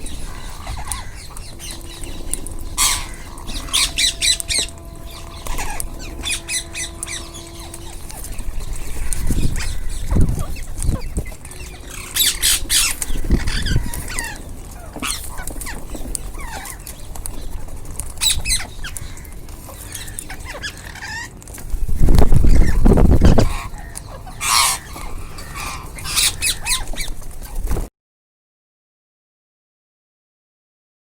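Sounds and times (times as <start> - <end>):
loud low rumble: 0.0 - 14.4
parrots squawking: 0.0 - 27.7.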